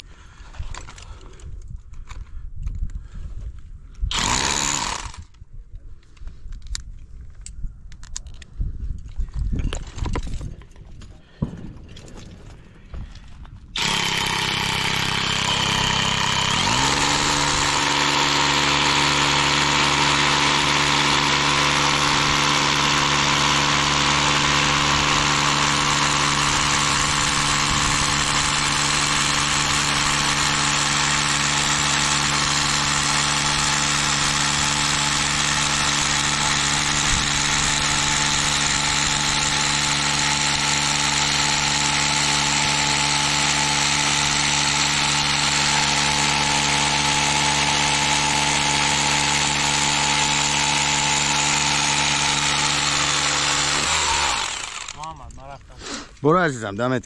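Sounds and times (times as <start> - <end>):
power drill boring into rock: 4.1 - 5.4, 13.8 - 56.1.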